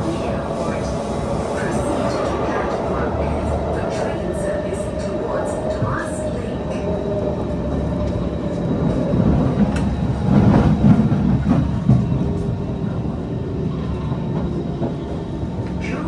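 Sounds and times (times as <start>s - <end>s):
rumble of train wheels on track: 0.0s - 16.0s.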